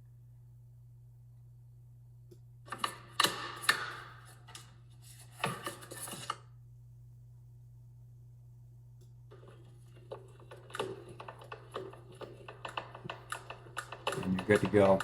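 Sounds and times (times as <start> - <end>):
clicks and clatter of heater parts: 2.7 - 6.4, 9.0 - 15.0.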